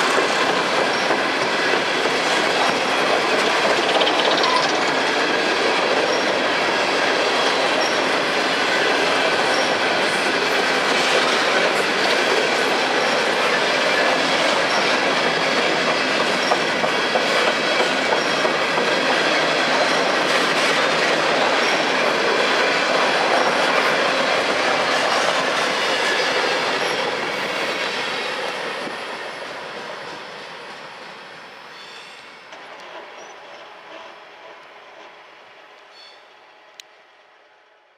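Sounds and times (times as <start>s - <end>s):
train wheels clacking on rails: 0.0s - 35.2s
wheel squeal: 3.6s - 4.9s, 31.6s - 32.5s.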